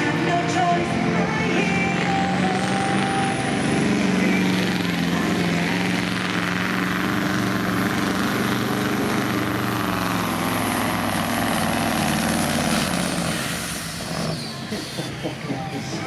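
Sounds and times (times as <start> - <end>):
diesel engine at high revs: 0.0 - 16.0.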